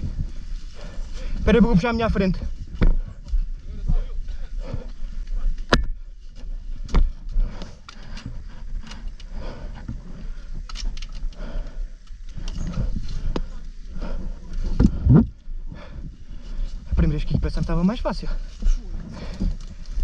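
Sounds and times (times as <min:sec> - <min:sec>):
low rumble: 0:00.0 - 0:20.0
knocks and clanks on rocks: 0:02.7 - 0:03.1, 0:05.6 - 0:06.0.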